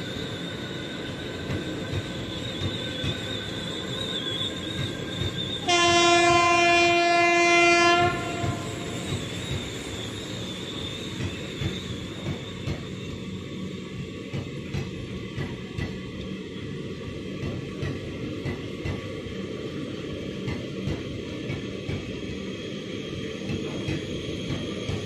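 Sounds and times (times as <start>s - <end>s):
train wheels clattering: 0.0s - 13.3s, 17.3s - 19.3s
high wheel squeal: 0.0s - 14.6s
locomotive horn blast: 5.6s - 9.0s.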